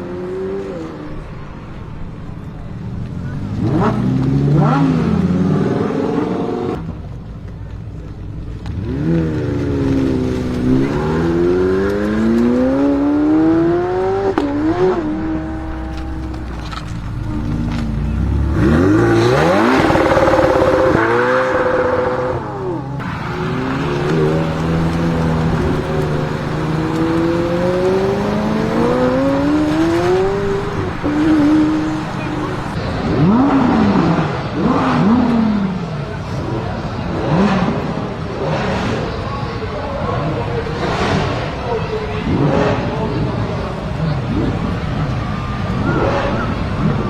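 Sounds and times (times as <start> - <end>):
car engine accelerating hard: 0.0 - 47.0
gearshift crack: 8.4 - 13.4, 23.0 - 32.8.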